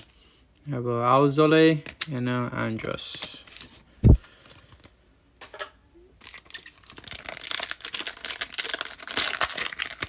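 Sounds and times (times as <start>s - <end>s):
wrapper crinkling and tearing: 6.2s - 10.0s.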